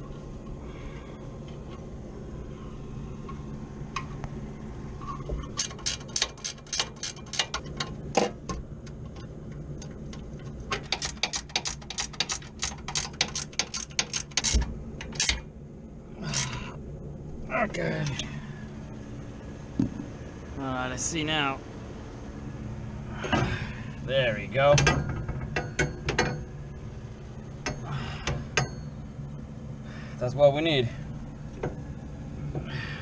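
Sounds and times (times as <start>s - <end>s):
steady low hum: 0.0s - 33.0s
ratchet wrench clicking: 5.5s - 8.0s, 10.8s - 15.4s.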